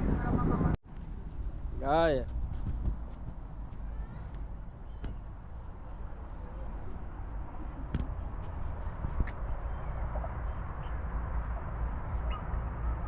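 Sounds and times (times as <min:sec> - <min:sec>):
steady low rumble: 0:00.0 - 0:13.0
faint indistinct voices: 0:03.6 - 0:05.3, 0:05.9 - 0:08.6.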